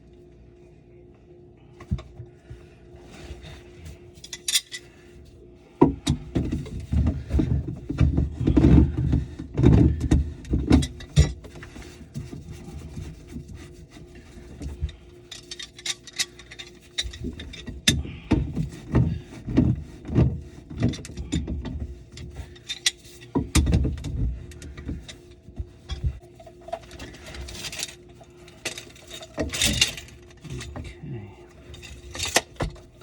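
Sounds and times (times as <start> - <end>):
tools and plumbing parts knocking: 5.8 - 11.6, 16.9 - 27.8.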